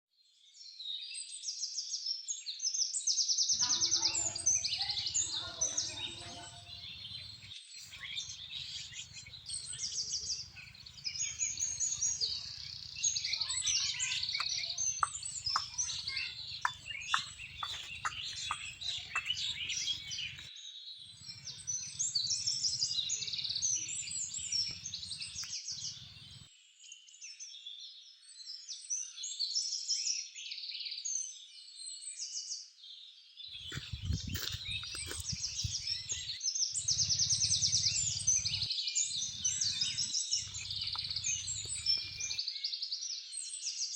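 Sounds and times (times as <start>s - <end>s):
birds chirping and singing: 3.5s - 26.5s, 33.5s - 42.7s
sharp repeated bird calls: 3.6s - 20.5s, 21.2s - 26.5s, 33.6s - 42.4s.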